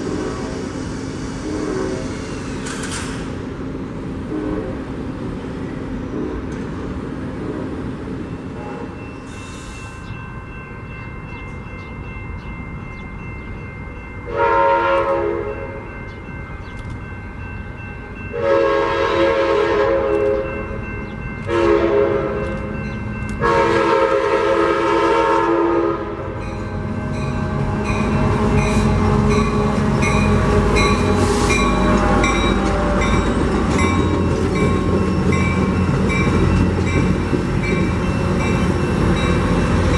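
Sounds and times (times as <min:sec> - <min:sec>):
train rumbling past: 0:00.0 - 0:39.9
train air horn blasts: 0:01.4 - 0:02.2, 0:04.2 - 0:05.0, 0:14.3 - 0:15.9, 0:18.3 - 0:20.5, 0:21.5 - 0:22.7, 0:23.4 - 0:33.4
wheels clacking over rail joints: 0:26.9 - 0:39.9.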